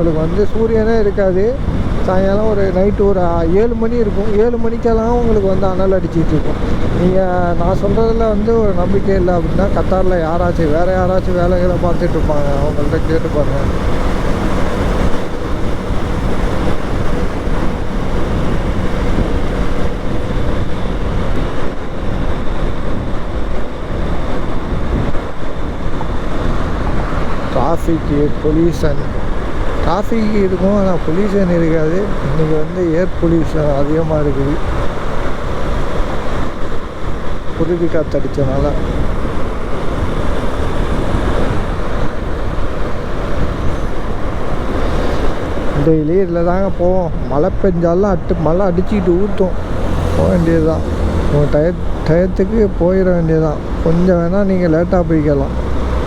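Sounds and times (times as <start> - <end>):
motorcycle engine hum: 0.0 - 56.0
road noise: 0.0 - 56.0
wind rush on microphone: 0.0 - 56.0
motorcycle engine: 8.3 - 27.6, 48.0 - 56.0.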